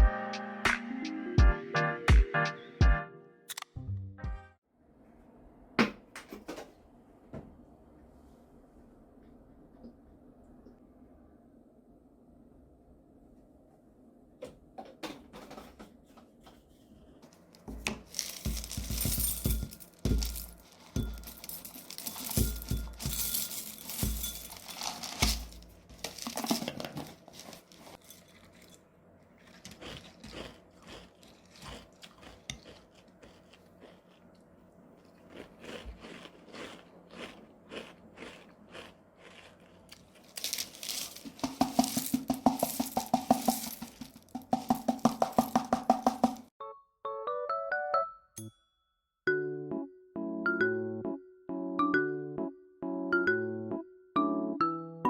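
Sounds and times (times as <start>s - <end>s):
background music with quick beat: 0.0s - 3.0s, 3.8s - 4.6s, 18.5s - 21.4s, 22.3s - 24.5s
packaging crinkling and tearing: 18.0s - 18.9s, 24.6s - 28.8s, 39.9s - 45.0s.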